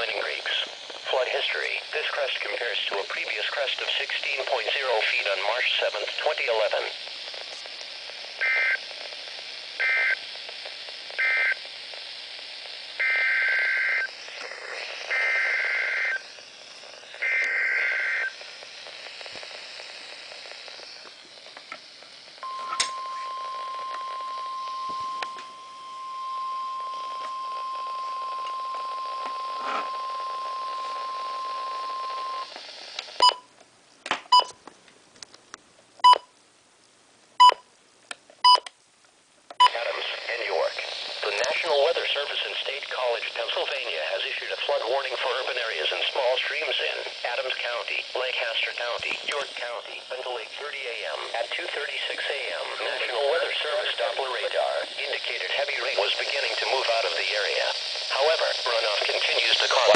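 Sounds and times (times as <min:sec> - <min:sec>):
radio hiss: 0:00.0 - 0:33.4, 0:39.5 - 0:59.9
steady warning alarm tone: 0:11.2 - 0:11.6, 0:13.0 - 0:14.1, 0:15.0 - 0:16.3, 0:17.2 - 0:18.4, 0:22.4 - 0:32.5.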